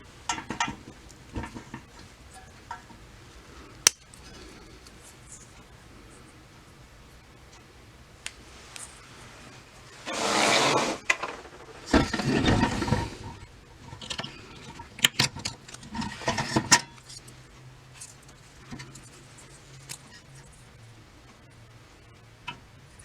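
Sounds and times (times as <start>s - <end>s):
metal parts scraping and rattling: 0.1s - 5.6s, 8.8s - 17.3s.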